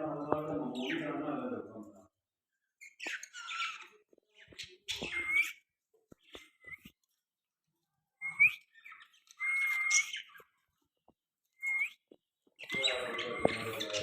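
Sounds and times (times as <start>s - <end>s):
parrot whistling: 9.4s - 10.3s.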